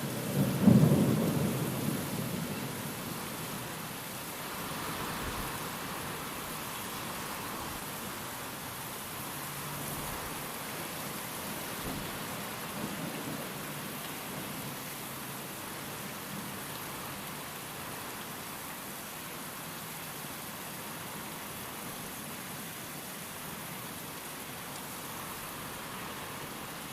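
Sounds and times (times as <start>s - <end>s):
rain hissing: 0.0s - 18.7s, 24.0s - 26.9s
wind: 0.0s - 26.9s
low thunder rumble: 0.4s - 3.0s.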